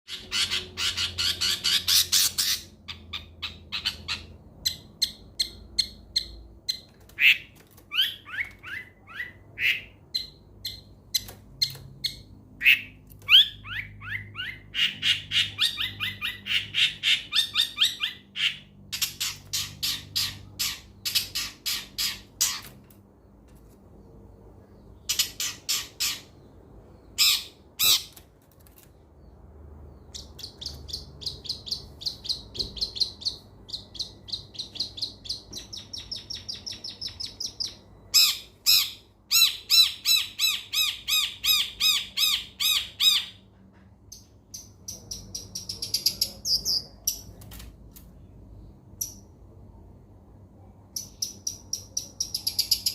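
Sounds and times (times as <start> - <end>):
bird harsh rasping squawks: 0.1 - 4.3.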